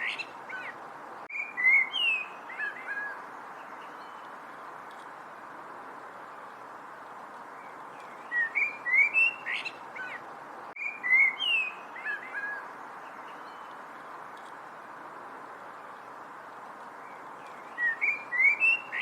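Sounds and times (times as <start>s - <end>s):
steady background hiss: 0.0s - 19.0s
songbird whistled chirps: 1.3s - 3.2s, 8.0s - 10.2s, 10.8s - 12.6s, 17.1s - 19.0s.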